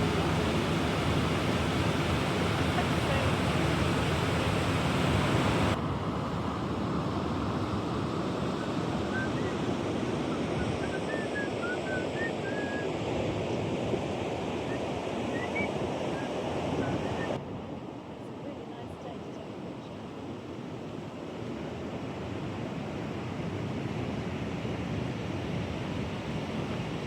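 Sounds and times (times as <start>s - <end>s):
water rushing: 0.0s - 5.8s.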